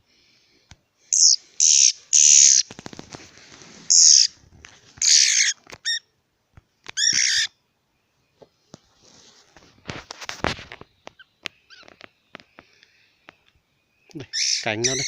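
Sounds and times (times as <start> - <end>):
bird distress squawks: 1.1 - 2.7, 3.9 - 4.3, 5.0 - 6.1, 6.9 - 7.6, 14.2 - 15.0.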